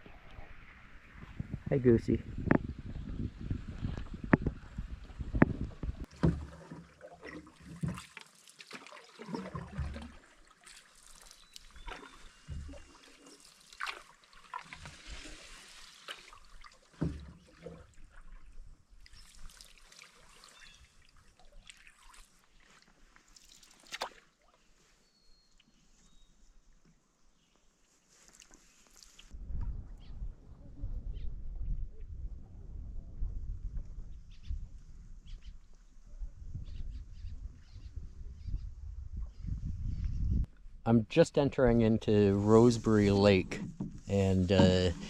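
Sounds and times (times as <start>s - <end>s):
paddle splashing water: 3.5s - 24.8s, 42.4s - 45.0s
paddle knocking against canoe: 5.3s - 8.1s, 9.4s - 10.2s, 17.0s - 17.8s, 43.4s - 45.0s.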